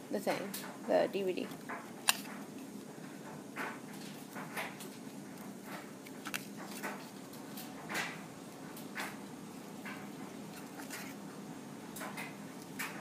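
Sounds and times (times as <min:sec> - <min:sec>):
scissors cutting plastic disc: 0:02.0 - 0:02.4, 0:04.5 - 0:07.5.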